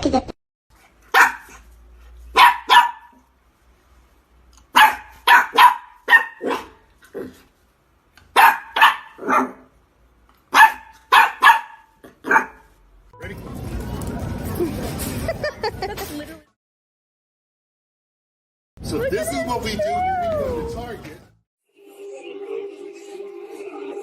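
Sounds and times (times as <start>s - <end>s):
dog barking loudly: 1.1s - 1.7s, 2.3s - 3.3s, 4.7s - 6.9s, 8.3s - 9.8s, 10.5s - 12.7s.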